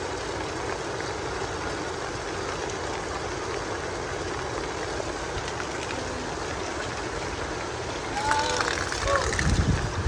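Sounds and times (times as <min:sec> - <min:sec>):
heavy rain falling: 0:08.0 - 0:10.0.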